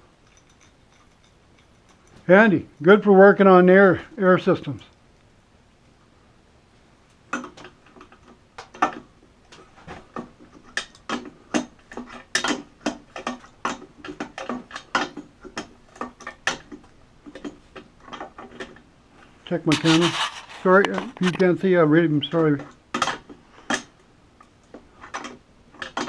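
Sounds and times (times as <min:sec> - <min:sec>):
hand tools clicking and knocking: 0:00.1 - 0:03.0, 0:07.3 - 0:18.8.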